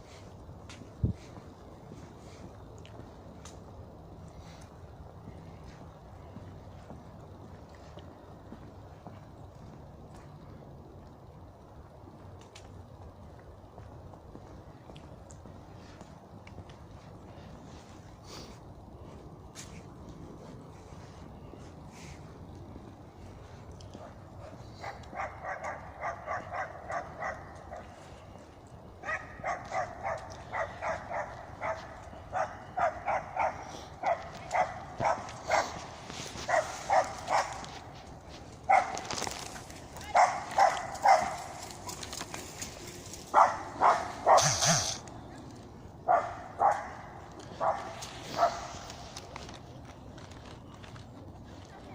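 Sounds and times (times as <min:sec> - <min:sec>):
dog barking rapidly: 0:40.1 - 0:41.4, 0:43.3 - 0:45.0, 0:46.1 - 0:47.0.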